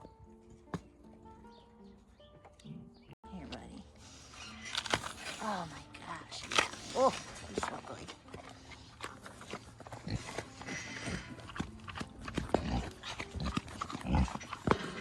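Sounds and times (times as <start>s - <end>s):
animal crunching food: 4.3s - 15.0s.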